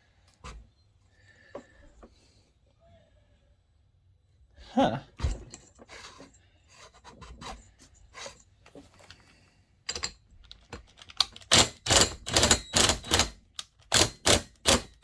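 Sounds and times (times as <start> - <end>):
metal parts clicking and rubbing: 9.9 - 15.0.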